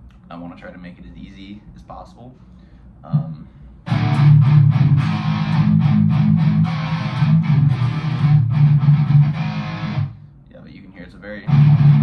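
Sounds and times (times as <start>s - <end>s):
distorted electric guitar riff: 3.9s - 10.2s, 11.5s - 12.0s.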